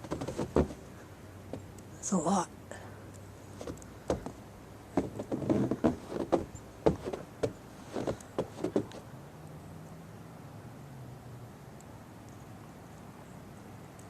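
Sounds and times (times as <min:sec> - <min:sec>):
irregular knocks and thumps: 0:00.0 - 0:00.8, 0:03.6 - 0:04.4, 0:05.0 - 0:09.0
low steady hum: 0:00.0 - 0:14.0.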